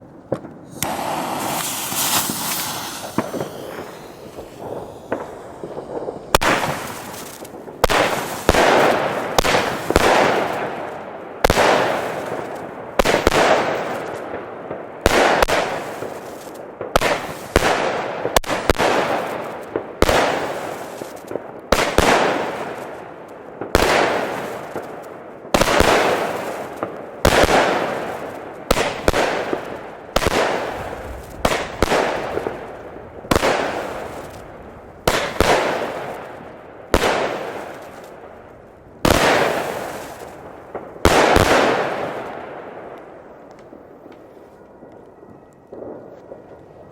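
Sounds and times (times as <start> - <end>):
firework shots with hiss: 0.3 - 14.3, 23.8 - 38.2, 39.0 - 42.5
firework hissing: 0.6 - 8.5.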